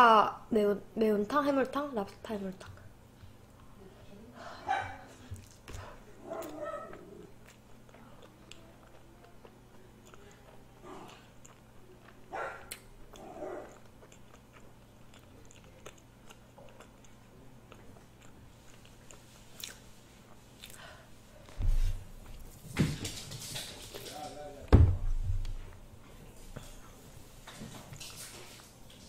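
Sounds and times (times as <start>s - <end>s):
soft chewing clicks: 5.2s - 21.6s.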